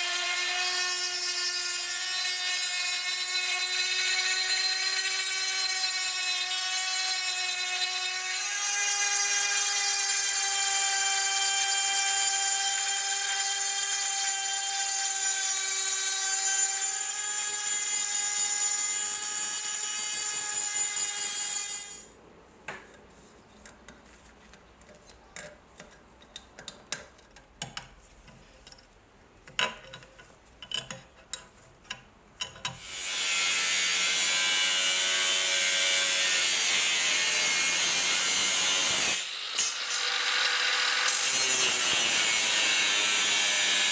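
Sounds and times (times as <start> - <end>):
power tool high whine: 14.6 - 22.1
clicks and scrapes: 22.7 - 32.8.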